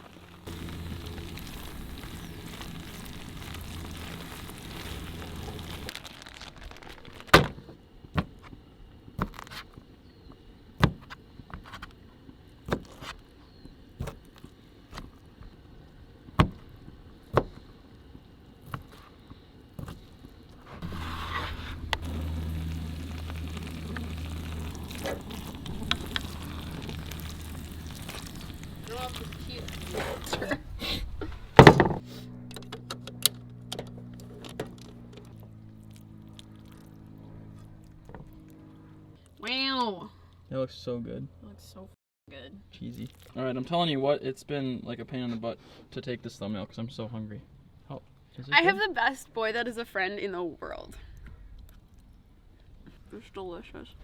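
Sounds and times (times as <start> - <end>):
steady low hum: 0.0 - 5.9, 15.5 - 39.4.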